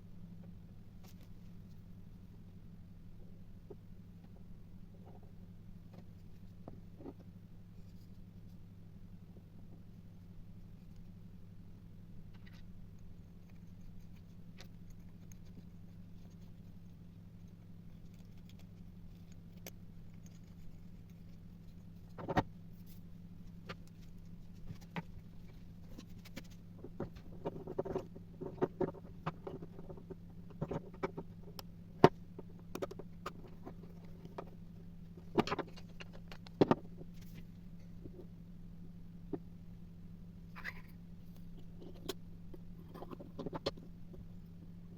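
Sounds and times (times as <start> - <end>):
steady low hum: 0.0 - 44.9
small parts clicking and tapping: 12.3 - 38.3, 40.6 - 44.4.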